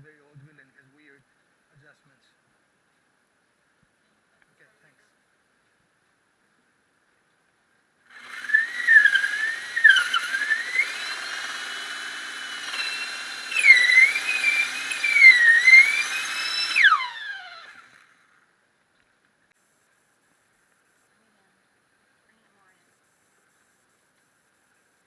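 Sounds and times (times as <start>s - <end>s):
power tool whining: 8.1s - 18.4s.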